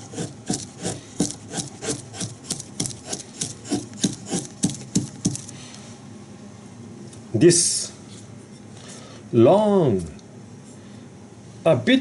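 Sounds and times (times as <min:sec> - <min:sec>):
knife shaving wood: 0:00.0 - 0:05.6.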